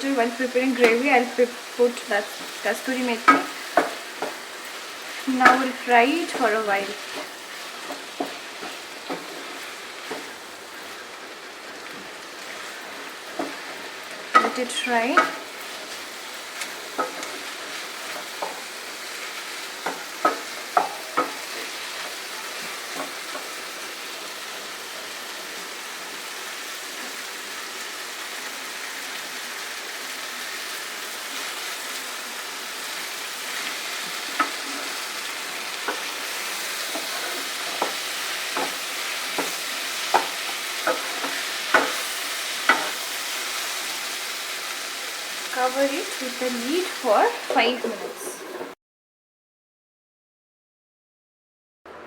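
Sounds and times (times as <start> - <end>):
paste sizzling in a pan: 0.0 - 48.8
spoon scraping and knocking pan: 0.6 - 11.0, 11.8 - 23.6, 33.5 - 44.0.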